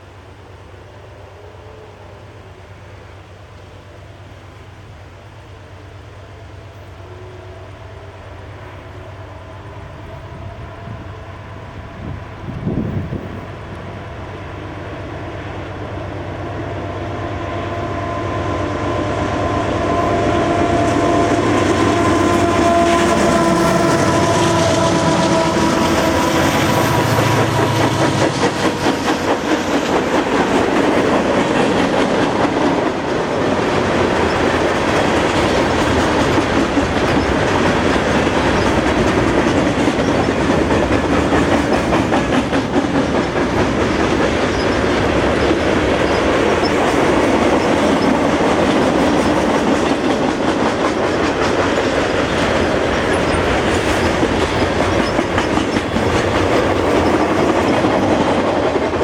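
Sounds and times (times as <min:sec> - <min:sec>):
train horn: 0:00.7 - 0:03.1, 0:06.0 - 0:13.5, 0:14.4 - 0:29.5
train wheels clattering over rail joints: 0:20.4 - 0:59.0.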